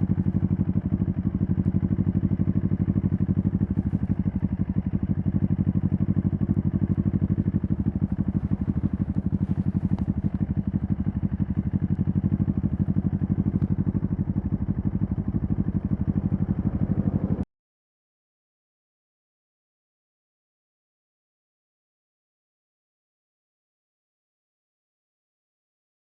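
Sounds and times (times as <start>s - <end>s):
motorcycle engine idling: 0.0s - 17.5s.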